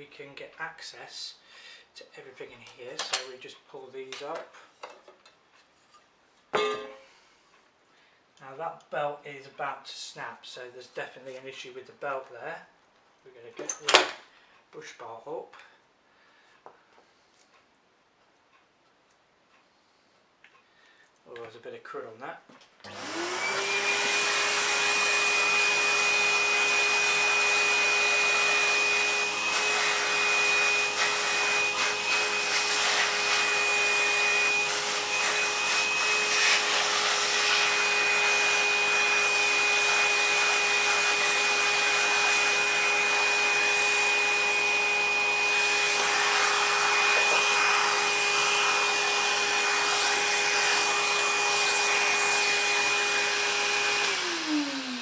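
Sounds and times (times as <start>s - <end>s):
vacuum cleaner motor whining: 22.8s - 55.0s.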